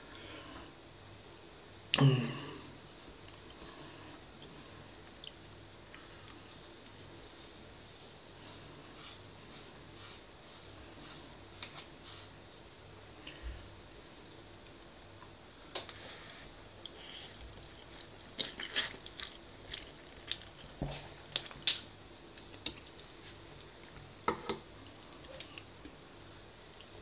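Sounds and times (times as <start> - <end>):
wet chewing mouth sounds: 16.8 - 20.7, 22.4 - 23.2.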